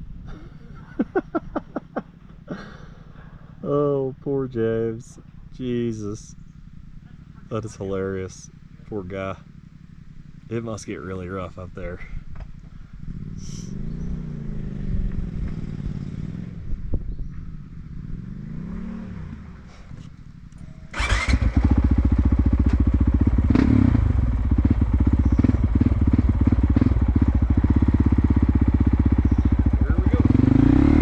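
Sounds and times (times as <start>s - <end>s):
distant motorcycle revving: 5.2s - 31.0s
nearby motorcycle engine running: 6.4s - 18.7s, 20.2s - 31.0s.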